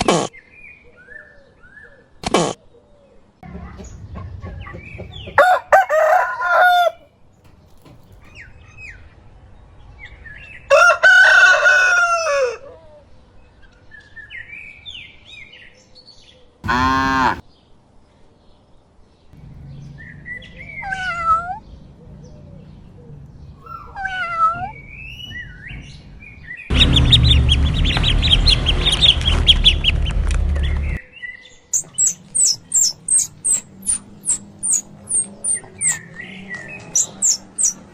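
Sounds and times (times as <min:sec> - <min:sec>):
birds chirping: 0:03.6 - 0:12.3, 0:16.4 - 0:37.9
rooster crowing: 0:05.4 - 0:07.1, 0:10.7 - 0:12.8
hens clucking: 0:16.6 - 0:17.4
rapid high peeping: 0:31.7 - 0:36.2, 0:36.9 - 0:37.9.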